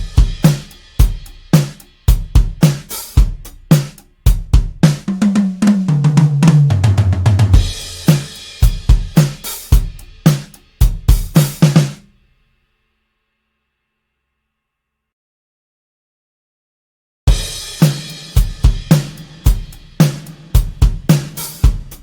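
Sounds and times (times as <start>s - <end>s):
tom fill: 0.0s - 12.0s, 17.3s - 22.0s
drum kit groove: 0.0s - 12.2s, 17.3s - 22.0s.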